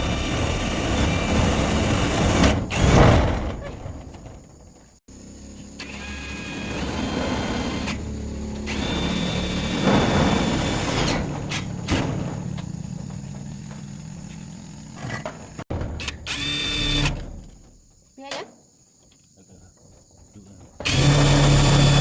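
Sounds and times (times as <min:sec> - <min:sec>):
power tool motor whining: 0:05.6 - 0:11.8, 0:16.0 - 0:17.3, 0:20.8 - 0:22.0
workshop clatter: 0:07.8 - 0:16.4.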